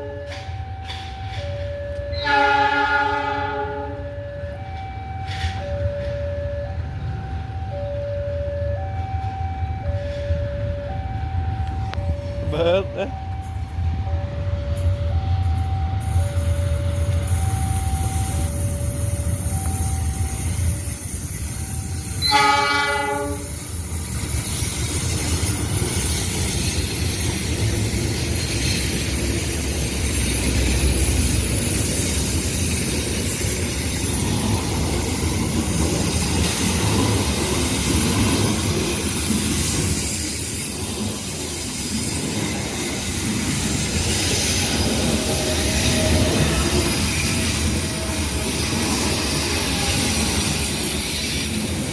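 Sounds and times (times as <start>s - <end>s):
train horn blowing: 0.0s - 0.5s, 2.1s - 4.2s, 22.2s - 23.7s
train wheels clattering on rails: 0.0s - 2.9s, 4.0s - 7.7s, 8.9s - 51.9s.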